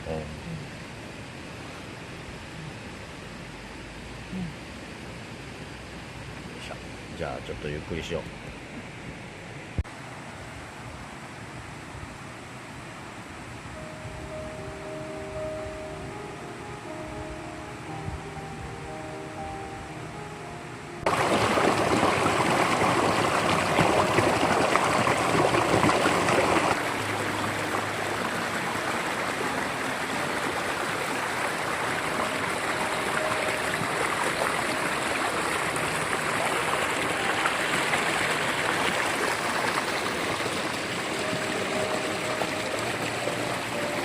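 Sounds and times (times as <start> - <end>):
mountain stream rushing: 9.9 - 44.0.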